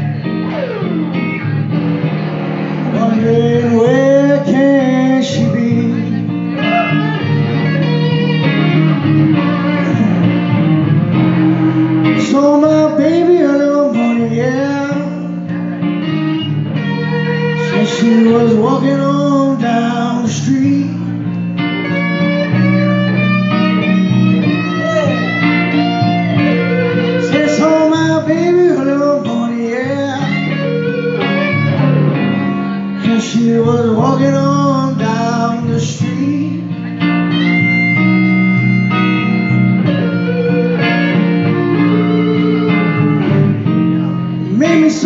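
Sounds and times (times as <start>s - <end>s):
blues guitars playing: 0.0s - 45.0s
person singing: 2.8s - 16.0s, 16.8s - 21.4s, 22.1s - 31.5s, 32.4s - 39.7s, 41.5s - 45.0s.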